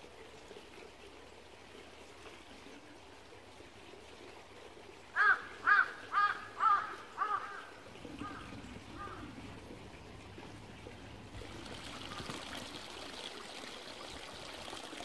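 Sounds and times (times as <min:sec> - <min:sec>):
small stream trickling: 0:00.0 - 0:15.0
bird calling: 0:05.2 - 0:09.5.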